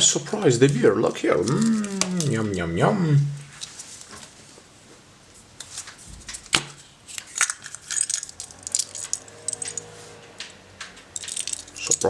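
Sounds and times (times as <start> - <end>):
plastic clicks and rattles: 5.6 - 12.0.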